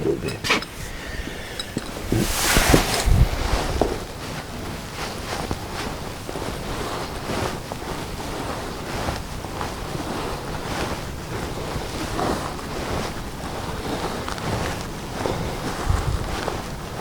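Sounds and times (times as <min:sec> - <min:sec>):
wind blowing across microphone: 0:00.3 - 0:04.3.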